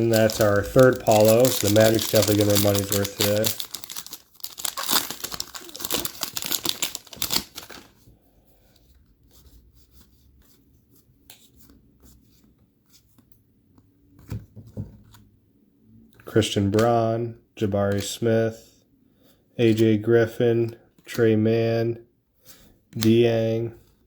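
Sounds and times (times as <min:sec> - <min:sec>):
cards being handled: 0:00.0 - 0:08.0, 0:22.6 - 0:24.0
foil wrapper tearing and crinkling: 0:00.0 - 0:08.0.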